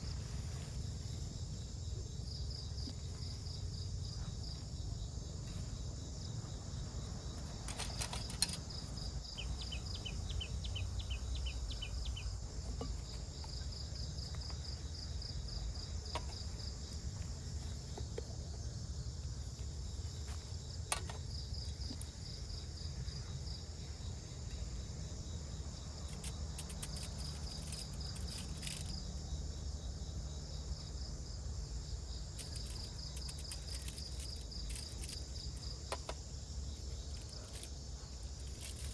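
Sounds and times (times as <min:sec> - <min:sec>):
lower faster insect chirps: 0:00.0 - 0:17.9
crickets chirping: 0:00.0 - 0:38.9.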